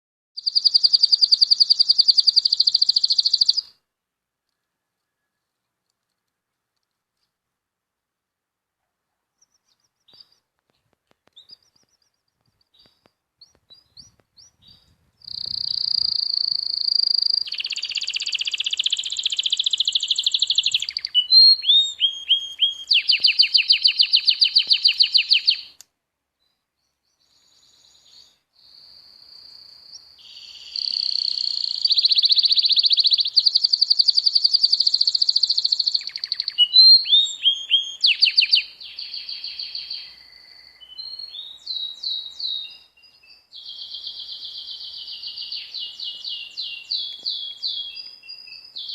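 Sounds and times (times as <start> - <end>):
songbird singing: 0.4 - 7.5, 8.8 - 48.9.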